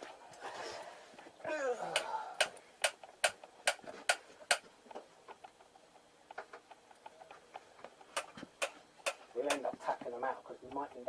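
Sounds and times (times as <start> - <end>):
sharp tapping on metal part: 2.0 - 4.6.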